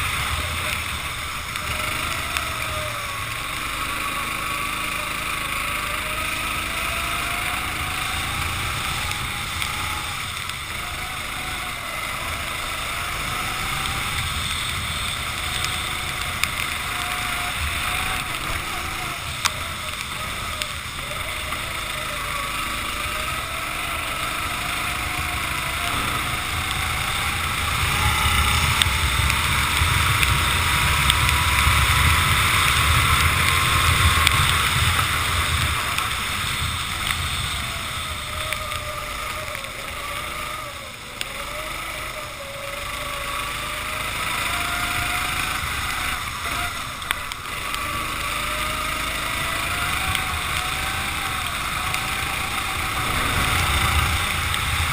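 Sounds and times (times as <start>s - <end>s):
racing kart engine: 0.0s - 54.9s
wet track spray: 0.0s - 54.9s
wind on microphone: 52.2s - 54.9s.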